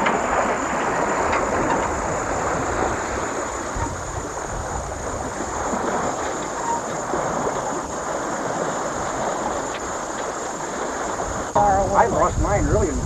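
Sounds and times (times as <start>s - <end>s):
wind rushing: 0.0s - 6.3s, 11.1s - 13.0s
water rushing past boat: 0.0s - 13.0s.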